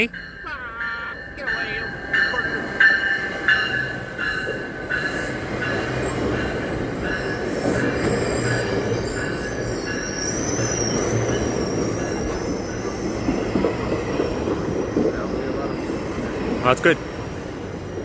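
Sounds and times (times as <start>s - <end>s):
train rumbling past: 0.0s - 18.0s
train wheels squealing: 3.5s - 17.4s.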